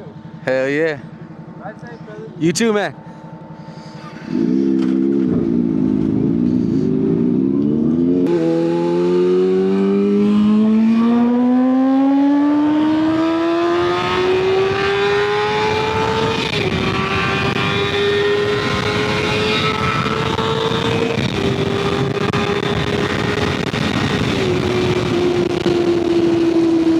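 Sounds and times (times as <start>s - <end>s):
motorcycle engine accelerating: 0.0s - 26.9s
wind noise: 12.8s - 26.9s.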